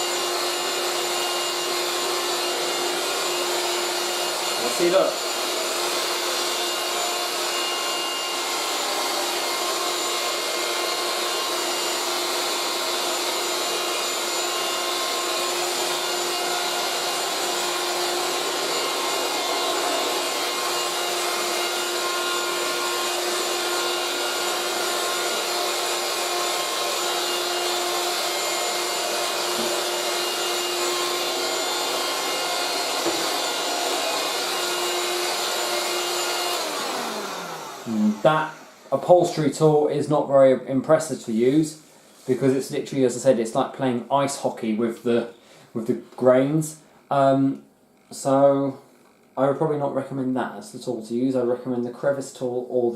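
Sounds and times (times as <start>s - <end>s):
handheld vacuum cleaner running: 0.0s - 40.2s.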